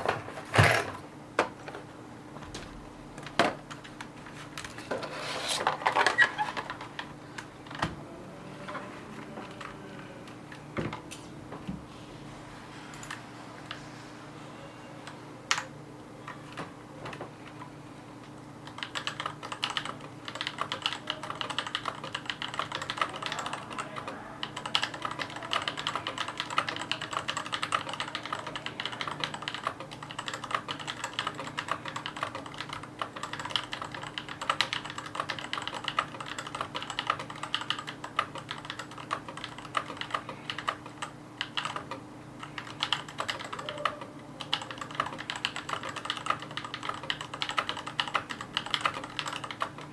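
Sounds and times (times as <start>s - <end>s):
mechanical keyboard typing: 18.6s - 49.9s.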